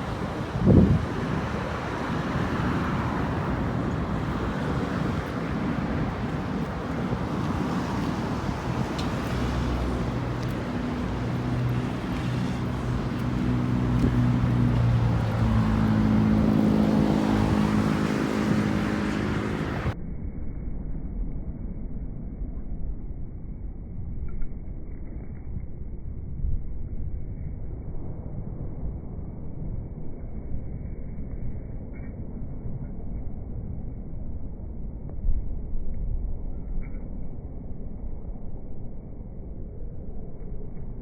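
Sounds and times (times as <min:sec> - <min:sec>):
outdoor rumble and hiss: 0:00.0 - 0:20.0
vehicle engine hum passing: 0:00.0 - 0:20.0.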